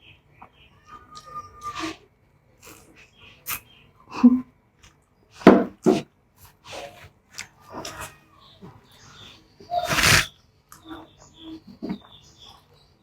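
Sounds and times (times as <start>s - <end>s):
wet mouth noises and slurps: 9.8s - 10.3s.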